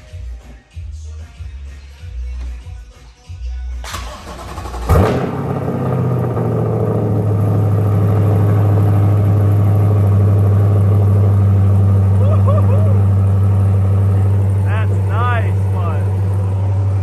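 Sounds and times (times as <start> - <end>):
engine starter cranking: 3.9 - 6.1
car engine revving and idling: 3.9 - 17.0.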